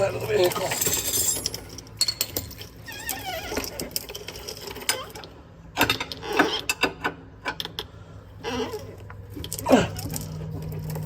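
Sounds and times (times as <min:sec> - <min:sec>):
wrench and socket clinking: 0:00.6 - 0:02.2.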